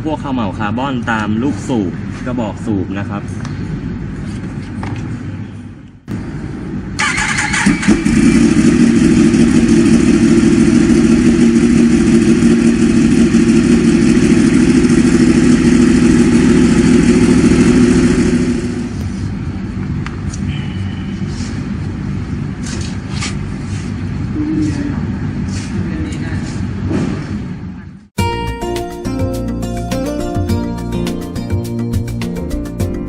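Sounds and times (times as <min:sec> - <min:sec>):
motorcycle engine idling: 0:07.0 - 0:19.0.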